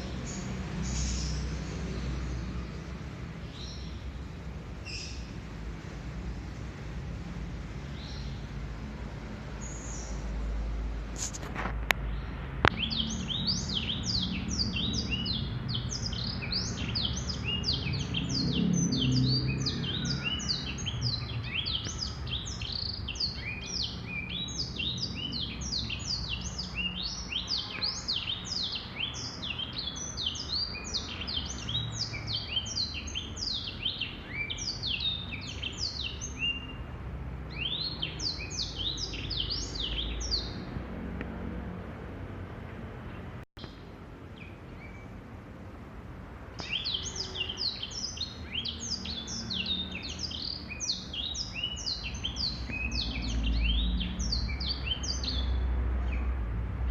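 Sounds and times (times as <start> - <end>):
bird singing high twittering notes: 12.1 - 36.8, 37.5 - 40.6, 46.6 - 56.3.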